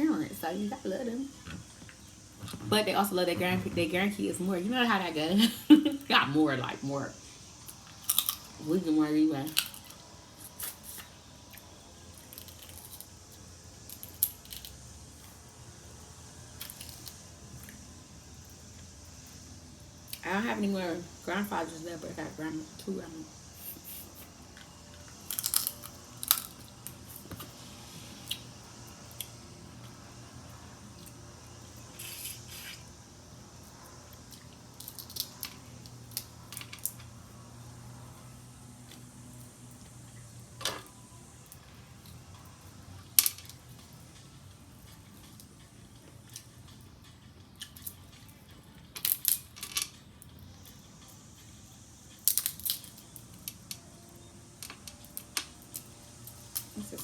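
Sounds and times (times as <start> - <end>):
faint low hum: 0.0 - 57.0
crab shells being cracked: 9.5 - 10.0, 13.9 - 14.8, 25.2 - 27.3, 34.8 - 37.0, 49.0 - 49.9, 52.2 - 53.8.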